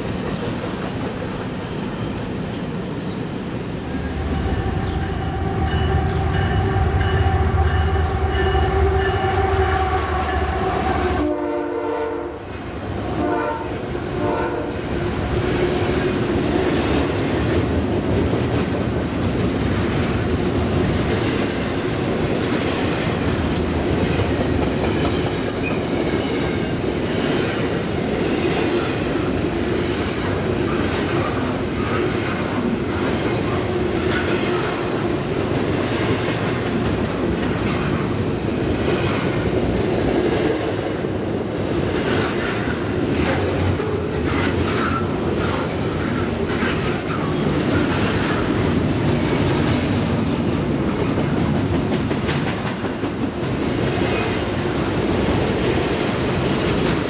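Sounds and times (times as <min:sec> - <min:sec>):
train wheels on rail: 0:00.0 - 0:57.0
locomotive horn blowing chord: 0:04.2 - 0:12.4, 0:13.2 - 0:14.8.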